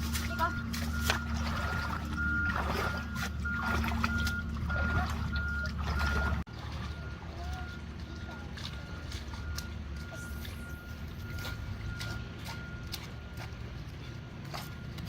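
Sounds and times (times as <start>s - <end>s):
engine-driven water pump droning: 0.0s - 15.0s
high beeps: 7.0s - 13.4s.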